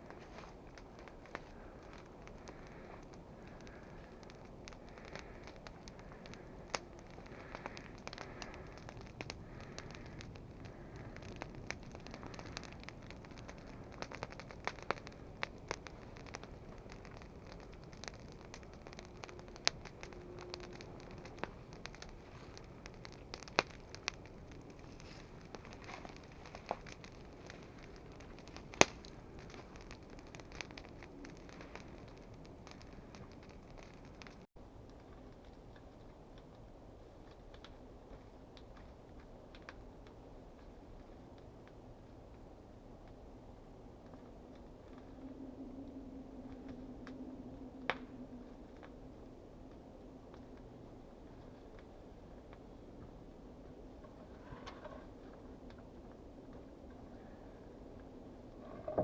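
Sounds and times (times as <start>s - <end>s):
sharp fire pops: 0.0s - 35.9s
dry kindling rustling: 0.0s - 41.3s, 50.3s - 59.0s
campfire crackling: 0.0s - 59.0s.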